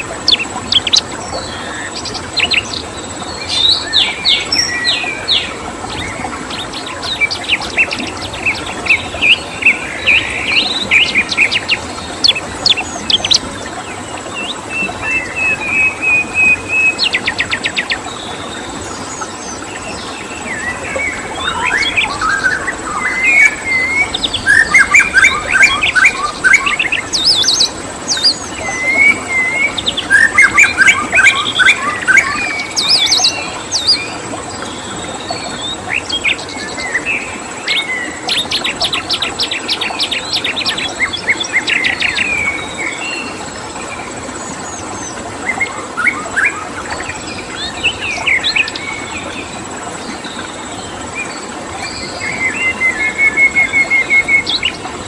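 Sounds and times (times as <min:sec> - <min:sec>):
songbirds chirping and trilling: 0:00.0 - 0:55.0
background hiss: 0:21.2 - 0:34.5.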